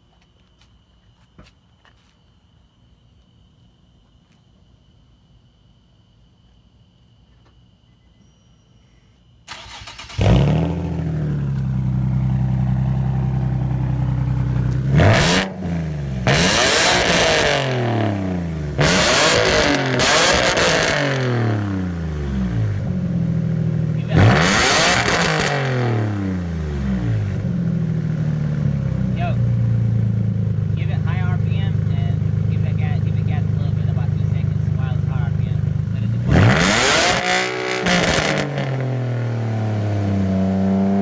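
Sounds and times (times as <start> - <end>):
starter cranking engine: 9.5 - 11.8
car engine idling and revving: 9.5 - 41.0.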